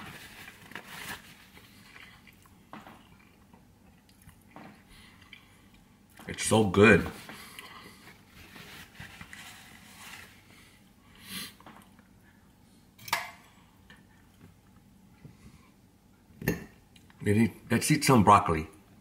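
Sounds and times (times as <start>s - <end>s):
person chewing: 1.5s - 6.2s.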